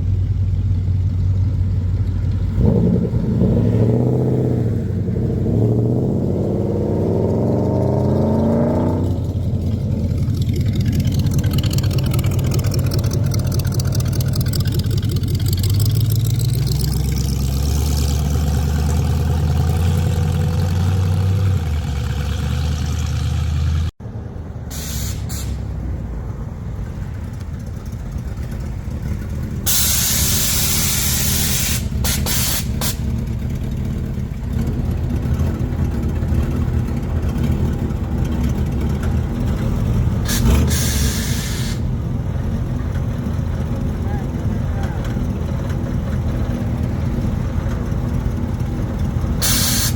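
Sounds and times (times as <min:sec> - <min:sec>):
car engines pulling away: 0:00.0 - 0:49.9
loud hiss of air: 0:24.7 - 0:25.7, 0:29.7 - 0:33.0, 0:40.3 - 0:41.8, 0:49.4 - 0:49.9
short air hisses: 0:24.7 - 0:25.7, 0:29.7 - 0:33.0, 0:40.3 - 0:41.8, 0:49.4 - 0:49.9
lighter engine sound: 0:49.4 - 0:49.9.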